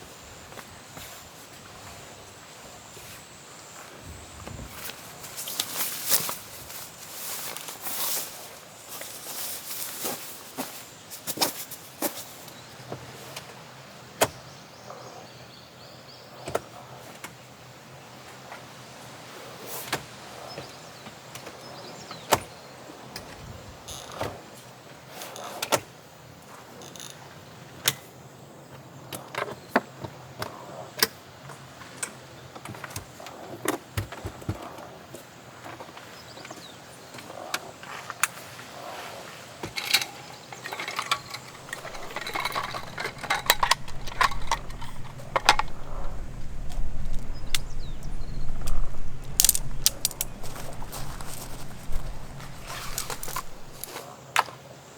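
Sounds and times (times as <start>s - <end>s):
clicks and knocks: 39.8s - 53.9s
low rumble: 41.5s - 53.8s.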